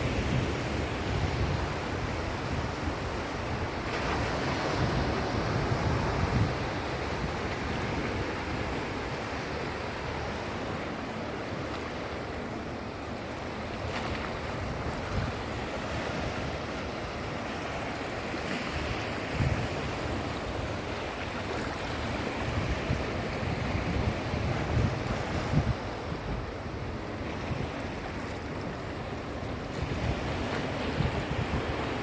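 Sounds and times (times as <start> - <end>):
wind buffeting microphone: 0.0 - 10.3, 18.8 - 32.0
sea waves washing on shore: 0.0 - 32.0.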